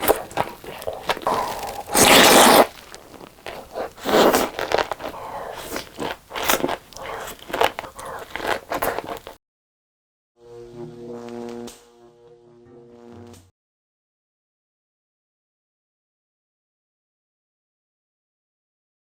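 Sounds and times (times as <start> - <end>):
crunchy bites: 0.0 - 9.4
food packaging rustling: 0.0 - 9.4.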